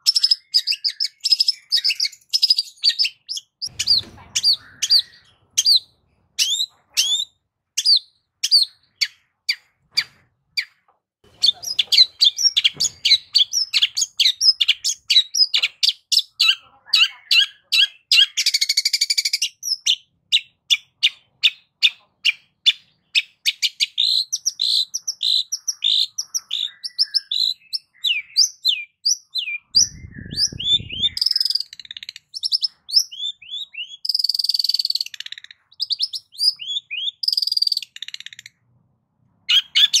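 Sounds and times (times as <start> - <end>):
bird singing sharp chirps: 0.0 - 10.8, 22.8 - 38.4.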